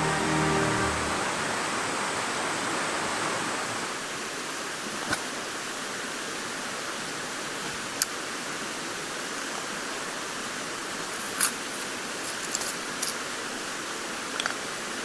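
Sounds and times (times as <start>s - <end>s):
music: 0.0s - 2.0s
rushing outdoor hiss: 0.0s - 15.0s.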